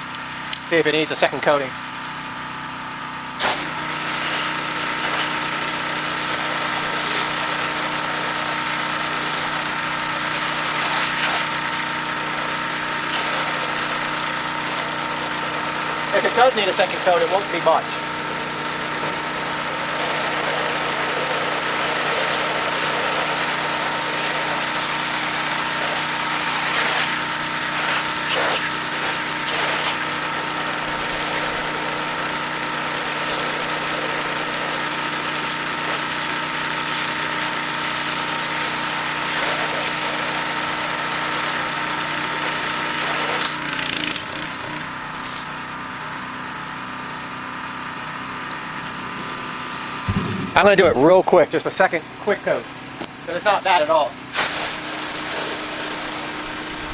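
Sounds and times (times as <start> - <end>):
pressure washer engine running: 0.0 - 56.9
hiss of water spray: 10.2 - 11.8, 54.3 - 56.2.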